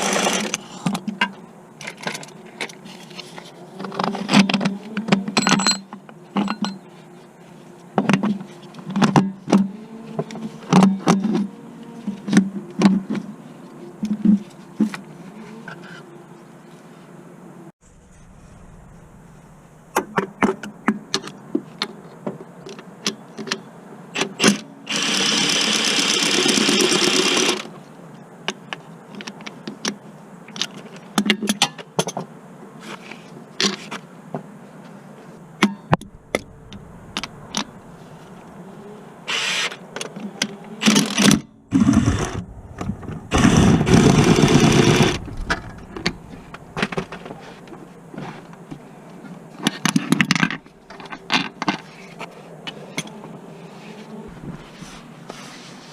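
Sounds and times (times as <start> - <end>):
loud noisy tool bursts: 41.7 - 46.7.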